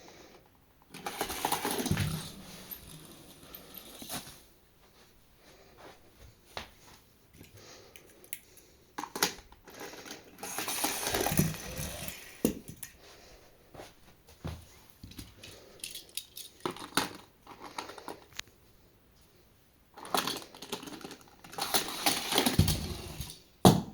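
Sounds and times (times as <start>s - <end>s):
toy cars rolling rush: 0.9s - 4.3s, 9.1s - 12.6s, 20.0s - 23.4s
toy cars clattering on plastic track: 0.9s - 4.4s, 9.0s - 12.9s, 15.1s - 18.4s, 20.0s - 23.4s.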